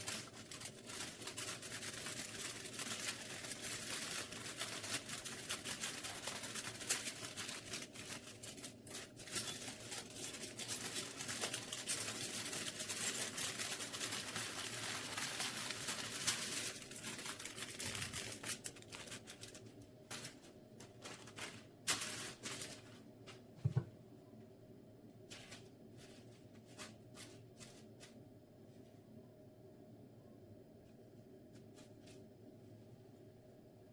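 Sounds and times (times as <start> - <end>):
rustling and crinkling handling noise: 0.0 - 29.2, 30.7 - 33.9
soft thump: 23.6 - 24.0.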